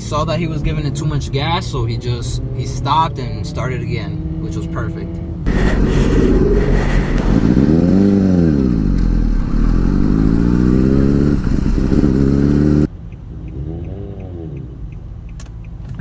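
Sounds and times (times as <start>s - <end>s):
motorcycle engine revving: 2.3s - 12.9s.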